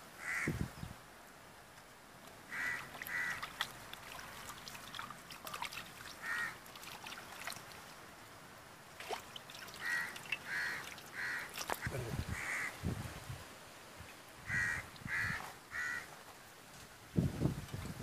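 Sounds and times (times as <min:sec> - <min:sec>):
bird harsh calls: 0:02.5 - 0:03.5, 0:06.2 - 0:06.6, 0:09.8 - 0:12.8, 0:14.5 - 0:16.1
hands splashing in metal bowl: 0:02.7 - 0:08.0, 0:09.0 - 0:11.8.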